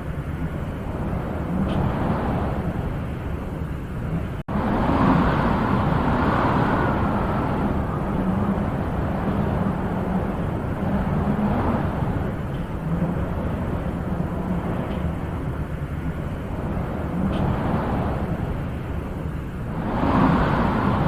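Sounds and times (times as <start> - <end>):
wind rushing: 0.0 - 21.0.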